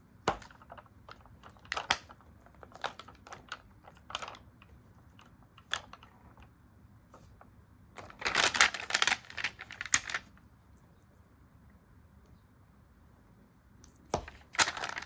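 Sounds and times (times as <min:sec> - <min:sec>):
paper rustling: 0:00.4 - 0:06.4, 0:08.0 - 0:10.4, 0:14.2 - 0:15.0.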